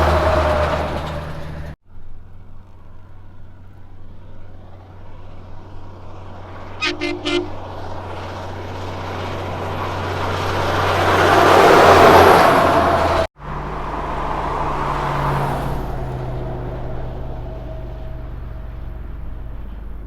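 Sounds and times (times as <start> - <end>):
road noise: 0.0 - 20.0
second truck engine droning: 0.0 - 20.0
truck engine droning: 0.0 - 20.0
truck horn toots: 6.8 - 8.1.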